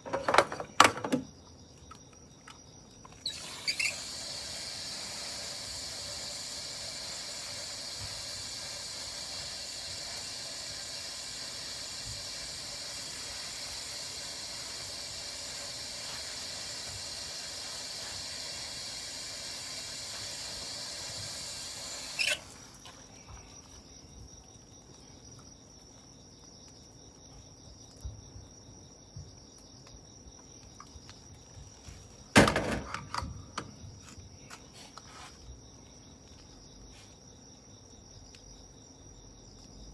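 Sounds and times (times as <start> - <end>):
night insects chirping: 0.0 - 39.9
single high insect tone: 0.3 - 24.8.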